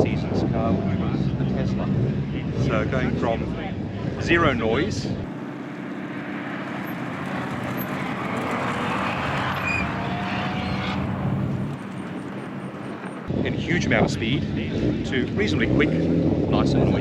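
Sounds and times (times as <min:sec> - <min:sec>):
racing car engine driving past: 0:05.3 - 0:13.3.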